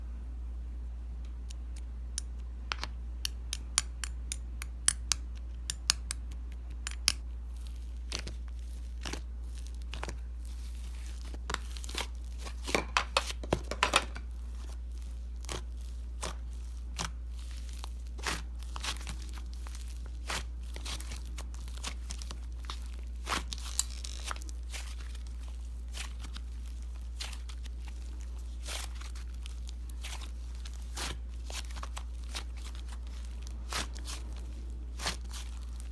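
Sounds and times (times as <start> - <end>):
paper and plastic crinkling: 7.4 - 35.9.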